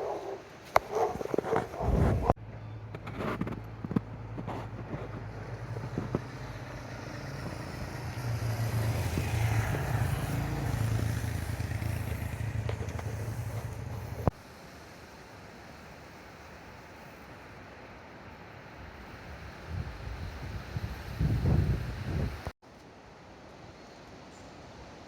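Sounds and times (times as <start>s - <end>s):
vehicle engine running: 2.4s - 14.3s.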